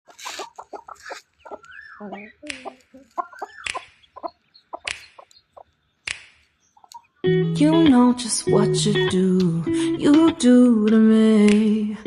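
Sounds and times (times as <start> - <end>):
duckling peeping: 0.1 - 5.8, 6.7 - 7.2
sharp clicks: 3.6 - 3.9, 4.8 - 5.4, 6.0 - 7.0.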